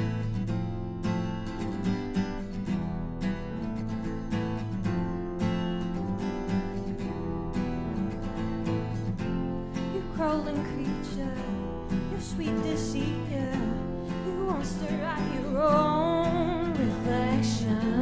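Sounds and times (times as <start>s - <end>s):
acoustic guitars strumming: 0.0s - 18.0s
person singing: 9.9s - 18.0s.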